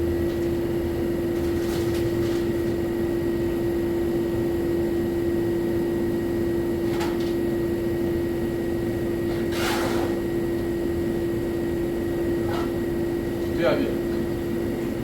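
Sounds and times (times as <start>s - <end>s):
steady machine hum: 0.0s - 15.0s
rustling scraping noises: 9.3s - 10.2s.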